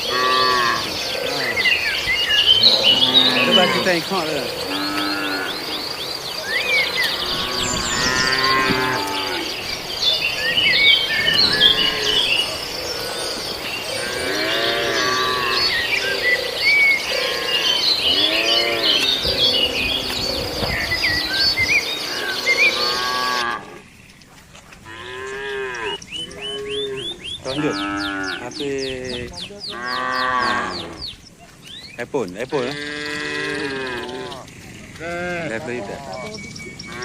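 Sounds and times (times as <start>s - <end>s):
cattle mooing: 0.0s - 5.8s, 6.8s - 9.7s, 10.9s - 16.4s, 17.1s - 20.9s, 22.0s - 23.9s, 24.8s - 28.6s, 29.7s - 31.0s, 32.6s - 35.7s
high chirping: 25.2s - 37.0s.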